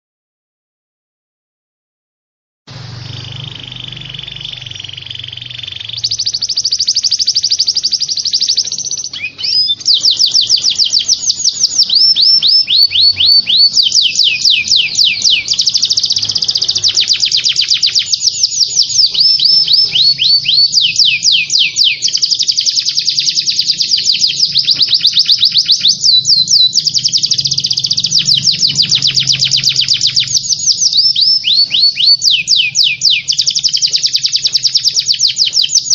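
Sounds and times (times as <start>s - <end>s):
buzzy bird chatter: 2.9s - 35.9s
songbird fast trills: 2.9s - 35.9s.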